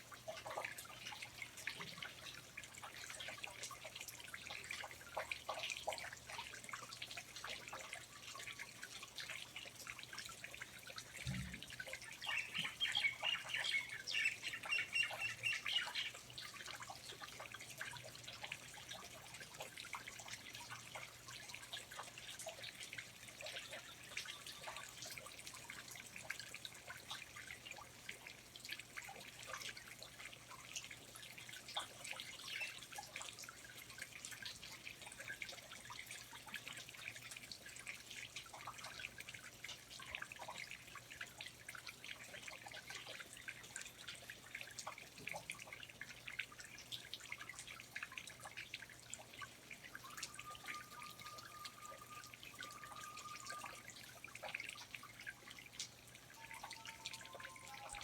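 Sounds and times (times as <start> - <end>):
water dripping: 0.0 - 58.0
bird singing high notes: 50.0 - 53.7, 56.4 - 58.0.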